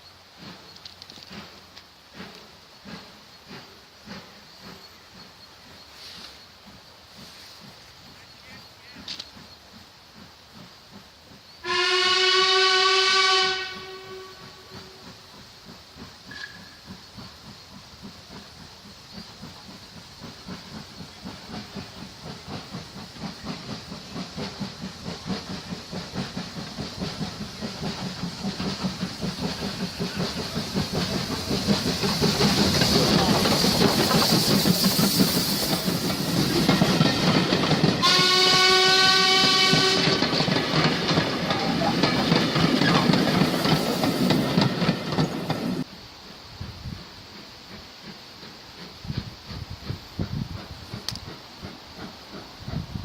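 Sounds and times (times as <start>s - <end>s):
steam hiss: 0.0s - 53.0s
steam locomotive working: 0.0s - 53.0s
steam whistle: 11.6s - 15.0s, 38.0s - 40.2s.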